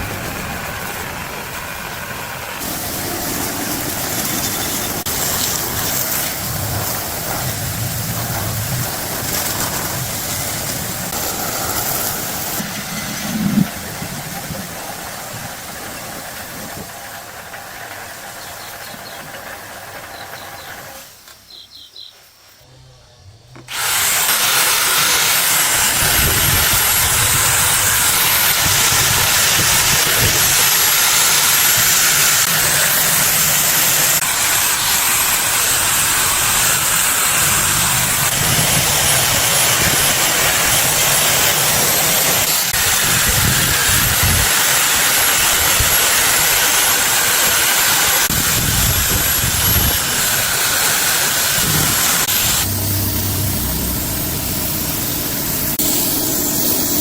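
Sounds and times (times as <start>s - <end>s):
high-pressure jet hissing: 0.0s - 22.1s, 23.6s - 57.0s
low motor rumble: 51.6s - 55.8s.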